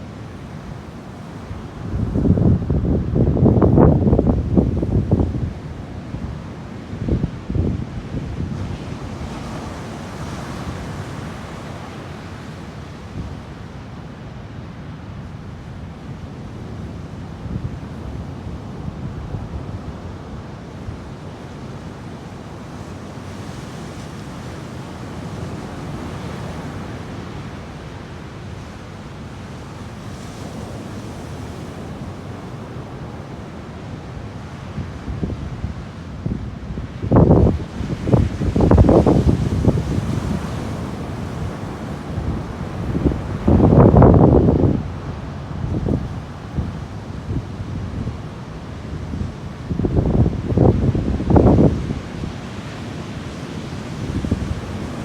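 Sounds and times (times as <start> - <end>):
ocean surf washing: 0.0 - 55.0
wind rumble on microphone: 0.8 - 13.5, 30.1 - 55.0
wind buffeting microphone: 35.0 - 48.3.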